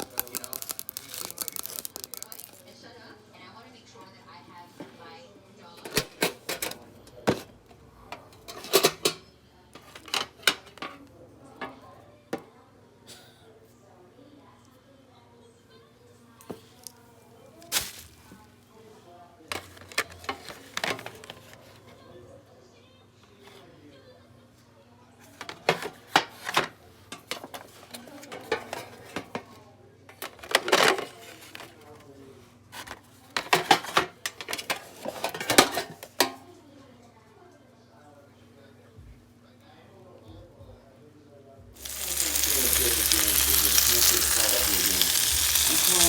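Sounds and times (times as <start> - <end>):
small hard objects clattering: 0.0 - 2.7, 17.7 - 18.3, 41.8 - 46.0.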